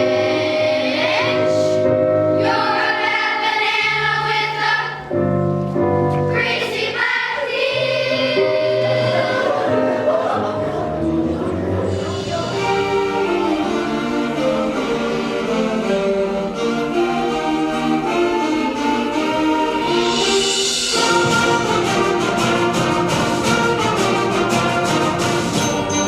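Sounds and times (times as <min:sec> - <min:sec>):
instrumental ensemble with brass and strings: 0:07.8 - 0:26.0.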